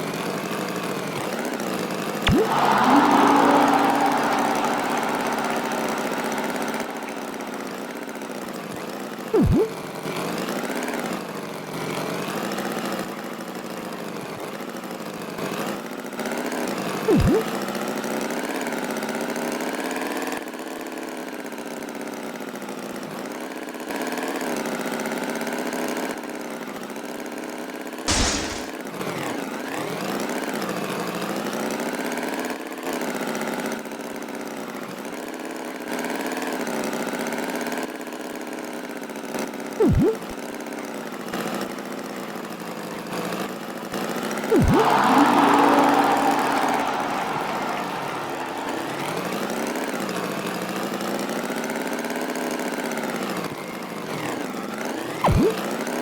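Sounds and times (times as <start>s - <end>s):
tone dropping in pitch: 2.3s - 7.5s, 9.4s - 9.8s, 17.1s - 17.5s, 39.8s - 40.2s, 44.5s - 45.2s
burst sweeping down in pitch: 2.3s - 7.7s, 9.4s - 9.7s, 17.1s - 17.5s, 28.1s - 28.7s, 44.5s - 49.2s.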